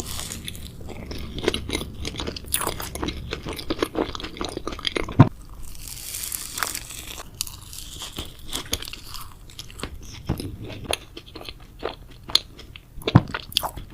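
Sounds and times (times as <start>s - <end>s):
chewing crisp sweets: 0.0s - 13.9s.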